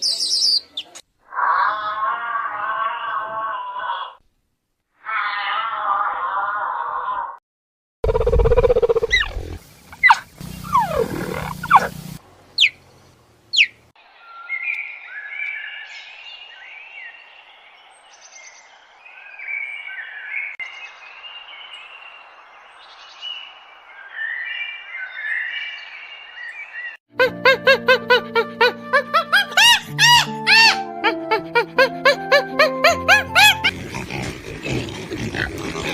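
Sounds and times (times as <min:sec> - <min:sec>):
low roar-like animal call: 0:01.3 - 0:04.2, 0:05.0 - 0:07.4, 0:10.6 - 0:11.9, 0:33.6 - 0:35.9
many birds chirping: 0:09.1 - 0:27.0.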